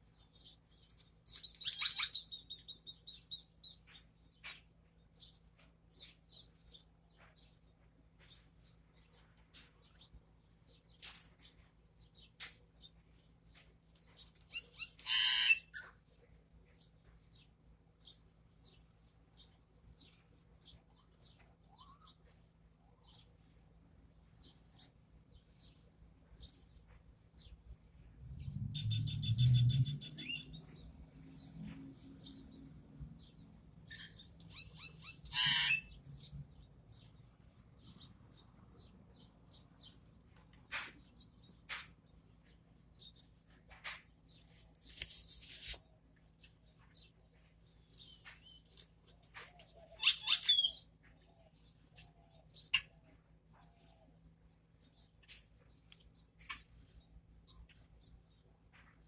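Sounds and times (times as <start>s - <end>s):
bird chirping: 0.0s - 13.3s, 14.0s - 58.9s
pet bird chirping: 0.2s - 4.5s, 14.1s - 16.0s, 19.4s - 23.3s, 28.8s - 30.9s, 33.3s - 36.2s, 49.5s - 54.1s
bird squawk: 1.6s - 2.8s, 14.5s - 15.9s, 28.8s - 30.6s, 33.9s - 36.0s, 49.8s - 50.8s.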